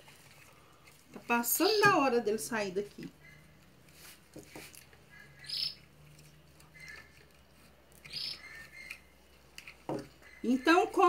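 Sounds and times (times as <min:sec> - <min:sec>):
faint bird chirps: 0:05.1 - 0:05.9, 0:06.7 - 0:07.2, 0:08.0 - 0:09.1, 0:10.2 - 0:11.0.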